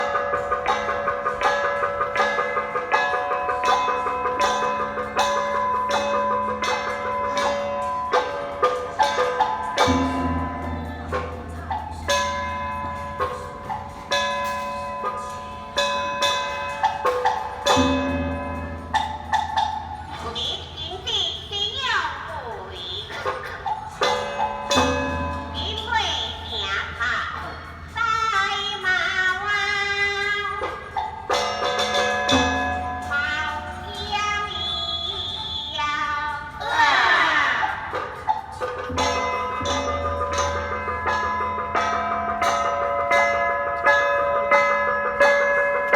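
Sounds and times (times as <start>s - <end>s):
sustained ringing tones: 0.0s - 21.6s, 23.8s - 27.1s, 38.0s - 45.9s
struck metal percussion: 0.0s - 22.4s, 23.1s - 28.0s, 28.7s - 34.8s, 36.3s - 45.9s
instrumental accompaniment: 0.0s - 35.6s, 37.8s - 45.9s.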